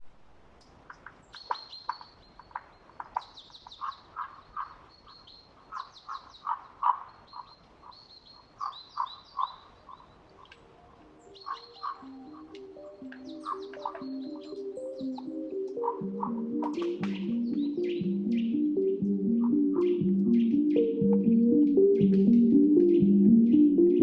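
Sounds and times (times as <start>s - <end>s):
birds chirping: 0.9s - 24.0s
soft music: 10.8s - 24.0s.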